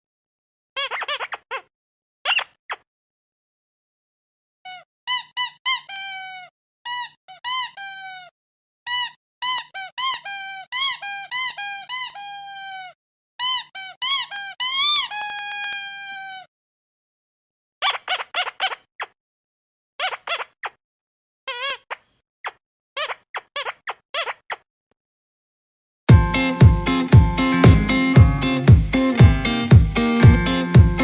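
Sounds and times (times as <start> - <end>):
squeaky dog toy squeaking: 0.8 - 2.8, 4.7 - 8.3, 8.9 - 16.5, 17.8 - 19.2, 20.0 - 20.8, 21.5 - 24.6.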